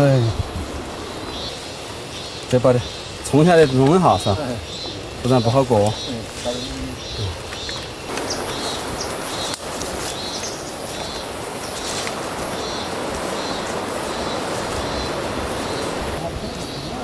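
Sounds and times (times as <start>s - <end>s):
small birds chirping: 0.0s - 17.0s
steady rushing noise: 8.1s - 17.0s.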